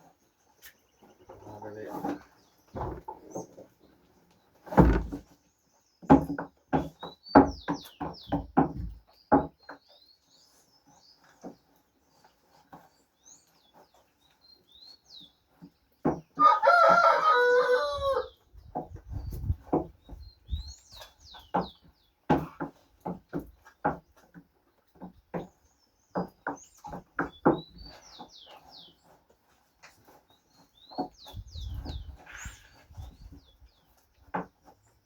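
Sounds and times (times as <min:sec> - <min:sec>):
small birds chirping: 0:00.0 - 0:35.0
rooster crowing: 0:16.4 - 0:18.3.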